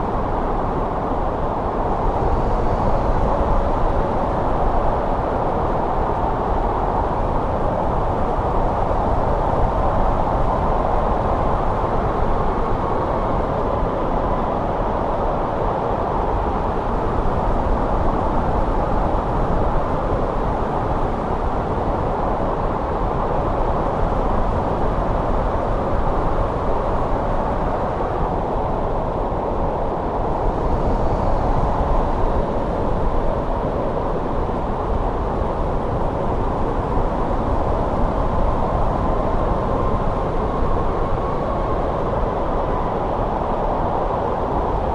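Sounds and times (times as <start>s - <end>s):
wind blowing and whistling: 0.0s - 44.9s.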